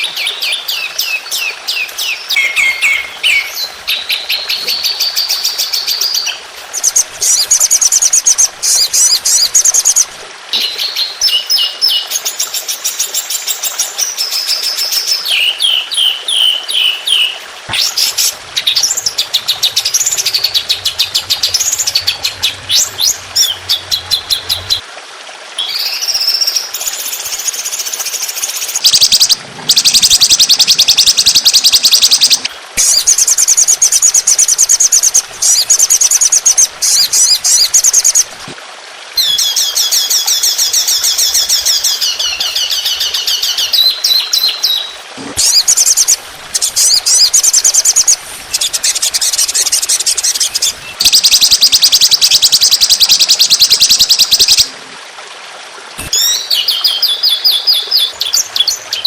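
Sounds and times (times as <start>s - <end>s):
songbird trills: 0.2s - 8.1s.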